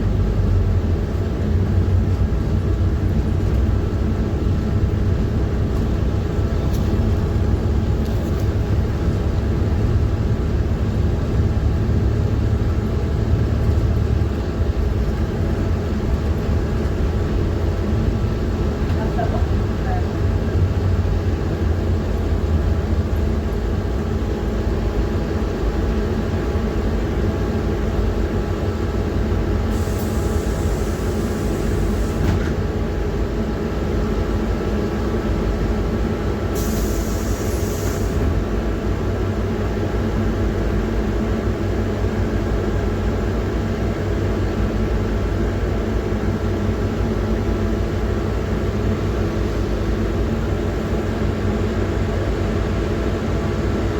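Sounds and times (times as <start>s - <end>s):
road noise: 0.0s - 41.8s
bus diesel engine drone: 0.0s - 53.9s
short air hisses: 29.7s - 32.3s, 36.6s - 38.3s.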